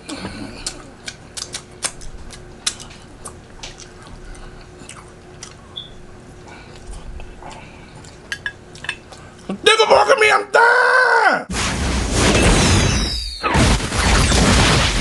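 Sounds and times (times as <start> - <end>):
person chewing: 0.0 - 9.6
wet mouth clicks and smacks: 0.6 - 4.1.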